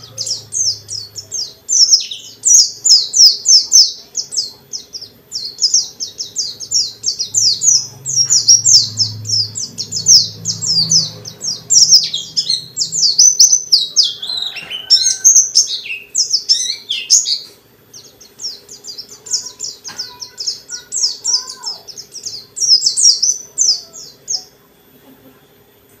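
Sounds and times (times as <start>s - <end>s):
bird warbling song: 0.0s - 25.7s
faint low hum: 0.0s - 26.0s.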